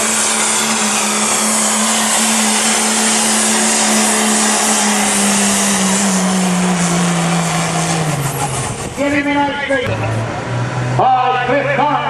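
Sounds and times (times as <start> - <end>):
pickup engine at full throttle: 0.0 - 11.0.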